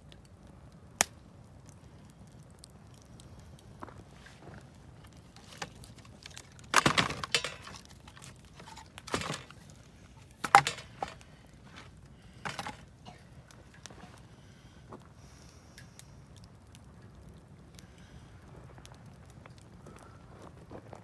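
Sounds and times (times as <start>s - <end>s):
fire snaps and pops: 0.1s - 6.8s, 15.8s - 20.1s
campfire crackling: 0.1s - 6.9s, 11.2s - 20.5s.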